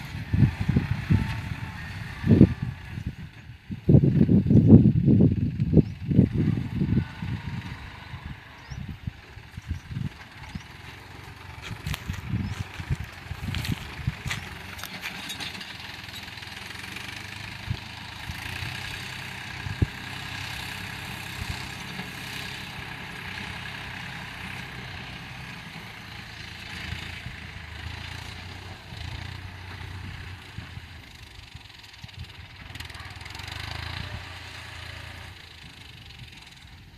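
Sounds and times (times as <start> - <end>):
tractor engine running: 0.0 - 36.9.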